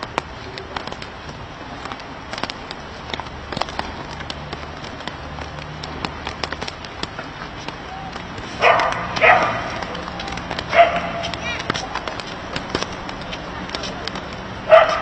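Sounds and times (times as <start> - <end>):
sharp irregular ticks: 0.0 - 15.0
dog barking: 8.6 - 9.8, 10.7 - 11.3, 14.7 - 15.0.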